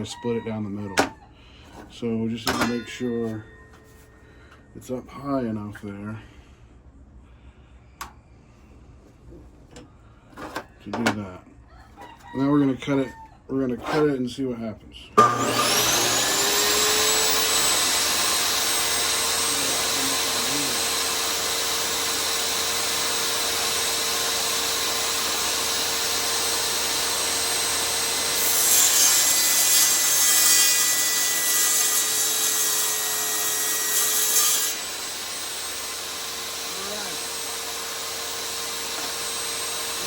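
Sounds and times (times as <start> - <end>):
saw rasping through antler: 13.7 - 14.1, 15.4 - 22.0
electric saw whining: 15.2 - 40.0.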